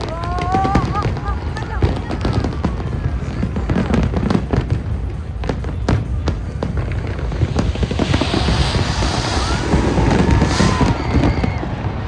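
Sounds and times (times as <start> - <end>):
fireworks bangs and crackles: 0.0 - 12.0
low rumble: 6.4 - 12.0.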